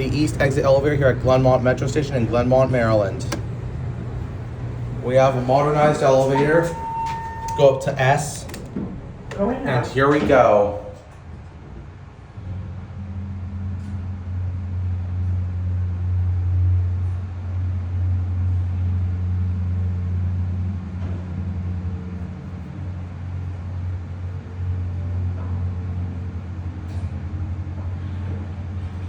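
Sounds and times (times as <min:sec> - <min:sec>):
elevator pump motor hum: 0:00.0 - 0:29.0.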